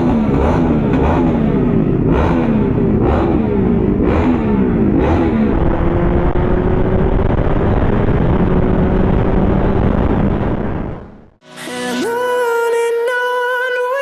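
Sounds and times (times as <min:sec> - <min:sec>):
motorcycle engine running: 0:00.0 - 0:11.4
dense rushing noise: 0:04.0 - 0:11.4.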